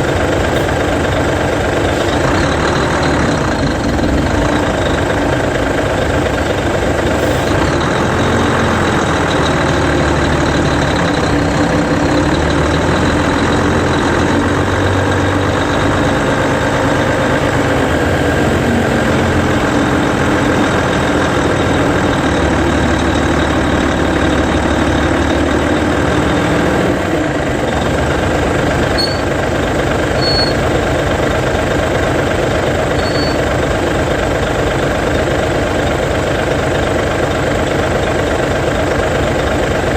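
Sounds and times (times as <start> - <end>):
bus diesel engine running: 0.0 - 39.9
short high brake squeals: 29.0 - 29.3, 30.2 - 30.7, 33.0 - 33.5.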